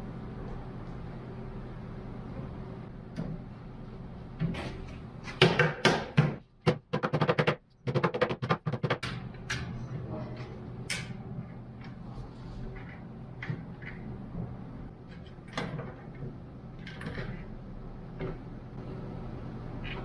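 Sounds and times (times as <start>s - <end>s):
steady low hum: 0.0s - 20.0s
sharp knocks and clattering ticks: 5.4s - 9.7s.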